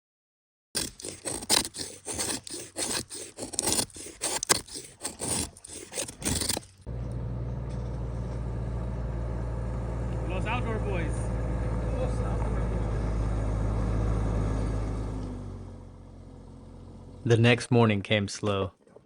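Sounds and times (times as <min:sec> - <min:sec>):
scraping and rubbing strokes: 0:00.8 - 0:06.9.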